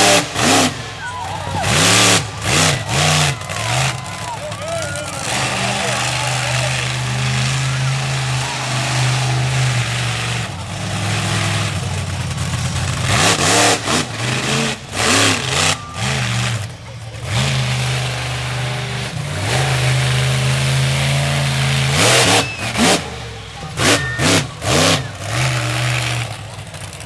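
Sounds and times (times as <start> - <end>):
monster truck engine revving: 0.0 - 27.0.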